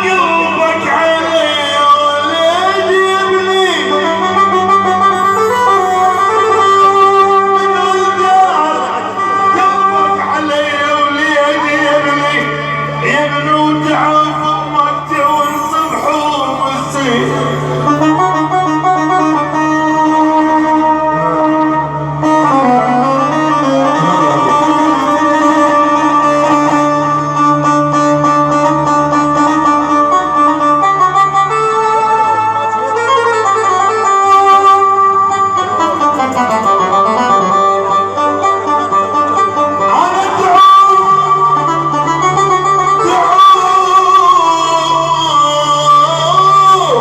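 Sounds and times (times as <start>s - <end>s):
held gliding melody line: 2.2s - 28.5s
steady low note: 12.4s - 20.0s, 23.4s - 27.9s
plucked string melody: 16.5s - 44.5s
plucked strings: 22.3s - 26.8s.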